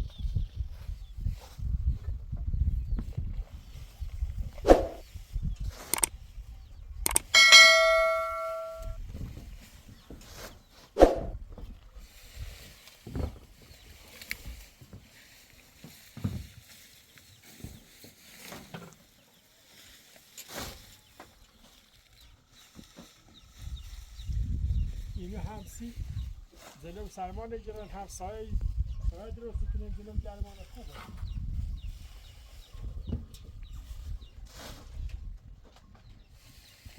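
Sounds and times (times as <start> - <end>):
loud metallic ring: 7.1 - 9.0.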